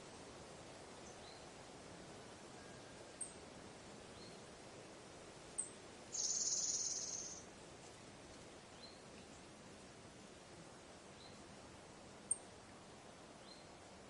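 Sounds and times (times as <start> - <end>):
soft background hiss: 0.0 - 14.0
faint short high chirps: 6.1 - 7.4.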